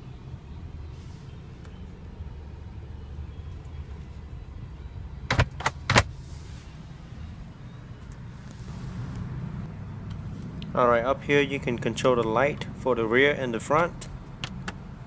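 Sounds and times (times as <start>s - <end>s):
steady low hum: 0.0s - 15.0s
glove box latch clicking: 5.3s - 6.1s.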